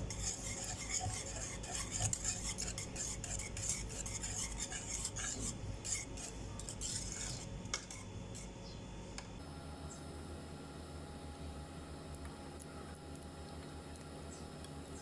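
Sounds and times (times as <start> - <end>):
utensil scraping and clinking a pan: 0.0 - 8.5.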